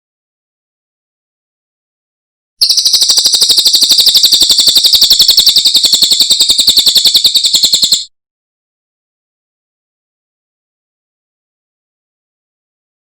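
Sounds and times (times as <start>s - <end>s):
songbird fast high trill: 2.6s - 8.1s.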